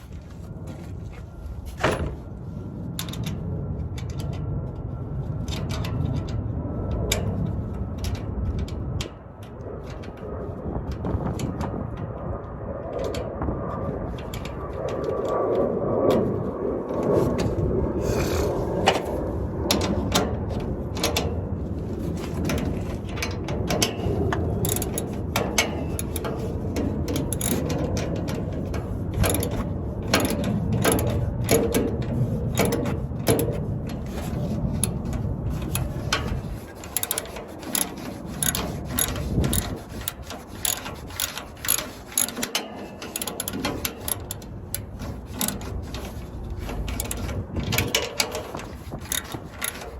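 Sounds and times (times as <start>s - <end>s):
low rumble: 0.0s - 36.9s
ratchet wrench clicking: 22.4s - 49.9s.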